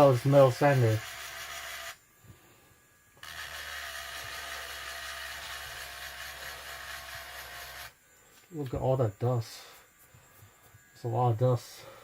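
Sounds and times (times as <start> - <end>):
electric sander running: 0.0 - 8.0.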